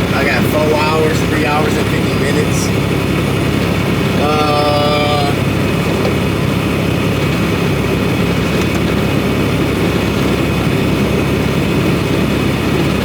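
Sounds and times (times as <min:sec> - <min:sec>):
truck engine and road drone: 0:00.0 - 0:13.0.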